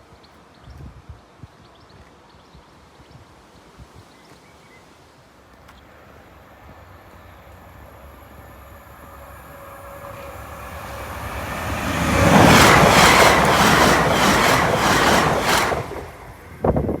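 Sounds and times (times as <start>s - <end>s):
electric train passing: 5.8s - 17.0s.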